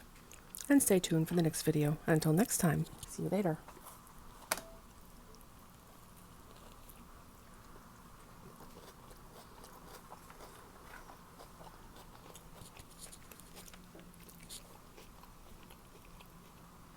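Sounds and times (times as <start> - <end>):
person chewing: 6.2 - 16.7.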